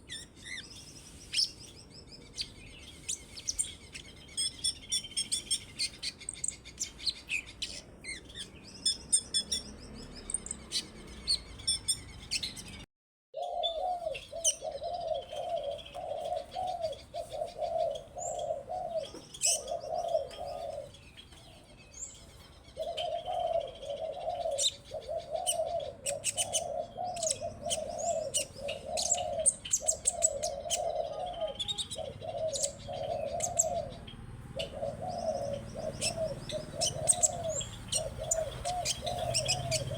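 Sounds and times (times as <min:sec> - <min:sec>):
songbirds chirping and trilling: 0:00.0 - 0:39.9
dove cooing: 0:13.4 - 0:39.9.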